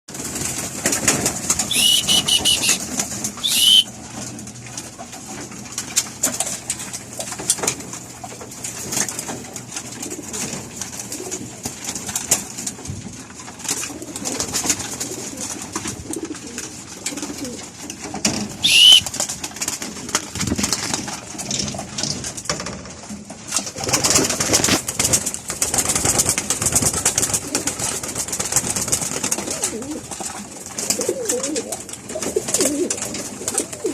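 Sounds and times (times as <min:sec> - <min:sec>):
high-pitched bird calls: 0:01.7 - 0:02.8, 0:03.4 - 0:03.9, 0:18.6 - 0:19.0
pigeons cooing: 0:01.7 - 0:02.8, 0:03.4 - 0:03.9, 0:18.6 - 0:19.0, 0:30.8 - 0:33.9.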